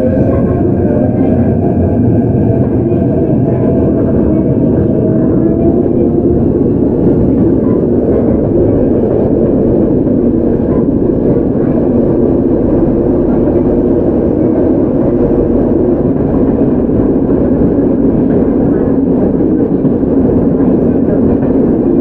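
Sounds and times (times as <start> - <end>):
electric train rumbling: 0.0 - 22.0.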